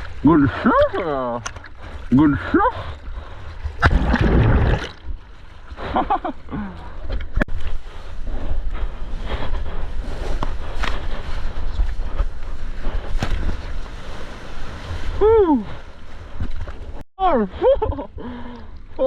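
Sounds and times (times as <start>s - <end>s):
seawater splashing and rushing: 0.0s - 6.1s, 10.0s - 17.0s.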